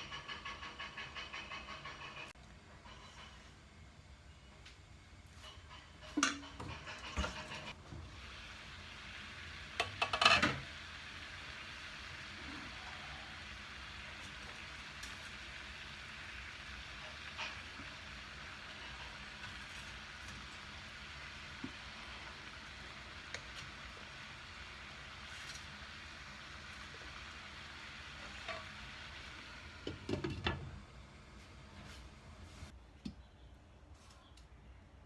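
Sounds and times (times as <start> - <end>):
cookware clattering: 9.8 - 10.7.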